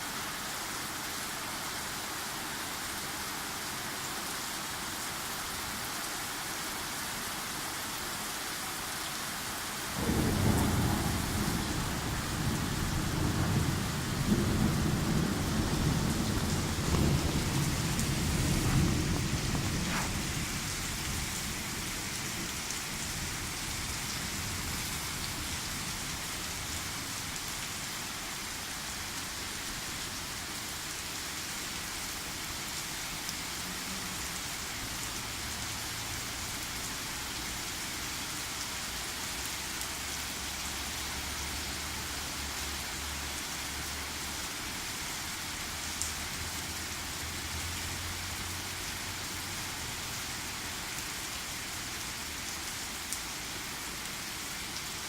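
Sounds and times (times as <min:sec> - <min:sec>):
steady rain: 0:00.0 - 0:55.0
thunderclap rumbling: 0:10.0 - 0:23.3.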